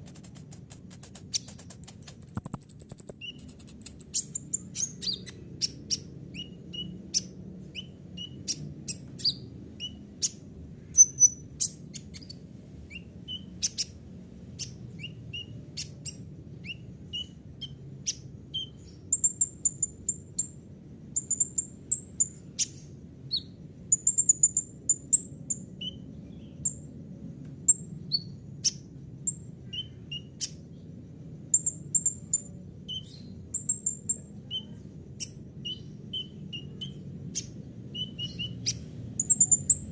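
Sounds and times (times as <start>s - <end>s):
faint low hum: 0.0s - 39.9s
sunbird singing: 1.1s - 14.0s, 14.6s - 39.9s.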